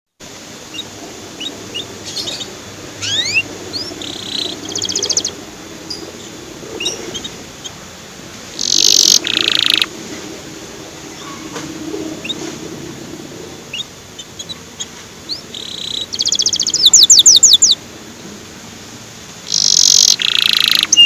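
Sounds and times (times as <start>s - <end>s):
canary singing: 0.6s - 7.9s, 8.6s - 9.9s, 11.1s - 12.6s, 13.5s - 17.8s, 19.4s - 21.0s.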